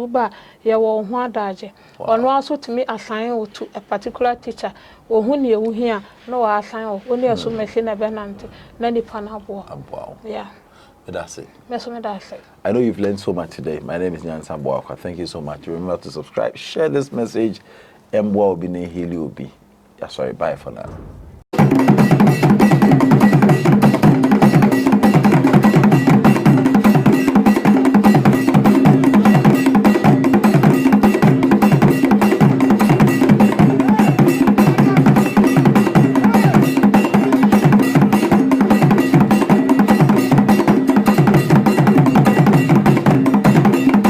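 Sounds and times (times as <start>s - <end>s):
fast percussion music: 7.2s - 10.1s, 20.8s - 44.0s
low pitched bass line: 20.9s - 21.4s.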